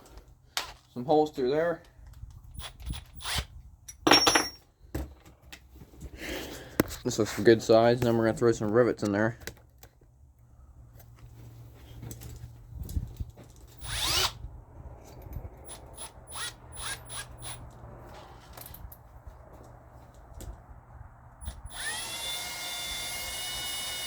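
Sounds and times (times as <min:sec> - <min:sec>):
power drill whining: 0:02.6 - 0:03.4, 0:13.8 - 0:14.4, 0:15.7 - 0:17.6, 0:21.4 - 0:24.0
drill trigger blips: 0:13.8 - 0:14.4, 0:15.7 - 0:17.6, 0:21.4 - 0:24.0.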